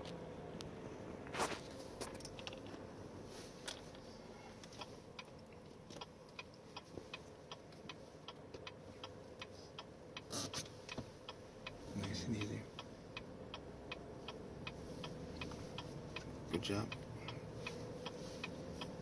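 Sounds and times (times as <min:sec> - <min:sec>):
faint steady hum: 0:00.0 - 0:19.0
regular ticking: 0:04.6 - 0:19.0.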